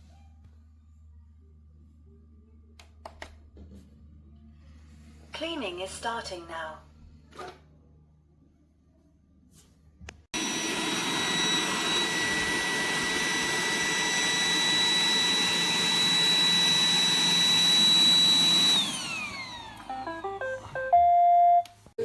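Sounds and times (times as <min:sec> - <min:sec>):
robot vacuum suction fan whining: 0:10.4 - 0:20.7.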